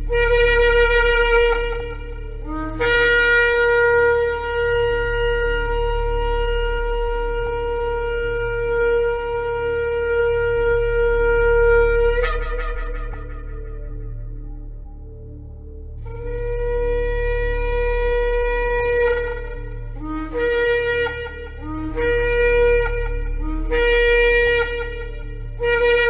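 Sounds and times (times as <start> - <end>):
shofar blasts: 0.0 - 15.0, 16.0 - 26.0
steady low drone: 0.0 - 26.0.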